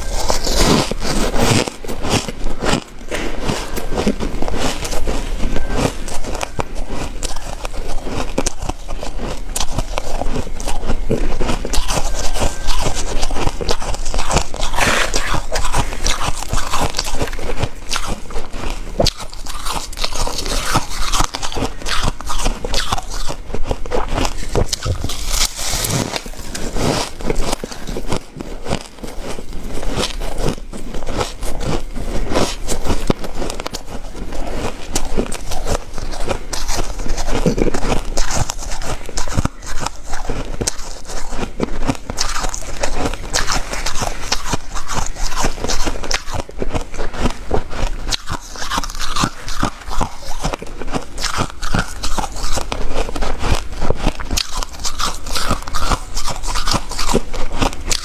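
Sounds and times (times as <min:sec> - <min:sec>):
ice being chewed: 0:00.0 - 0:58.0.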